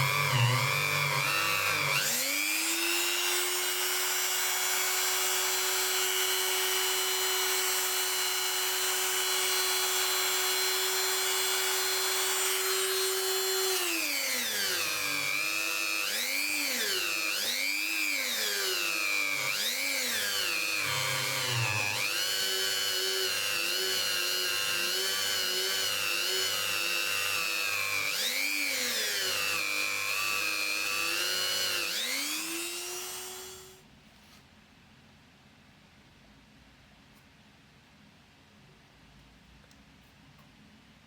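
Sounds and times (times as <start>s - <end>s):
electric power tool motor: 0.0s - 33.8s.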